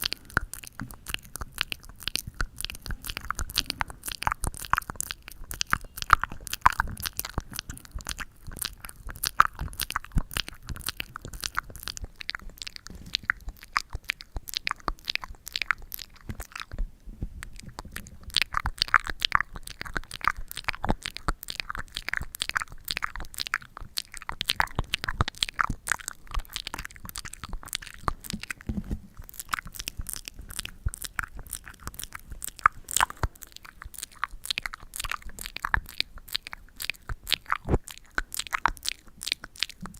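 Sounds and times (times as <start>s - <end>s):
sticky material crackling: 0.0s - 39.9s.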